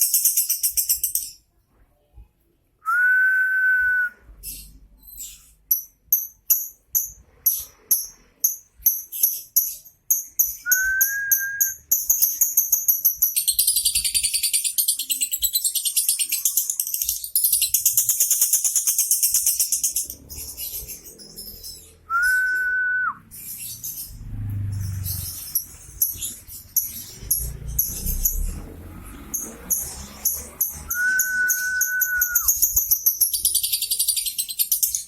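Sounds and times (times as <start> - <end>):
steady whistle note: 30.9 - 32.5.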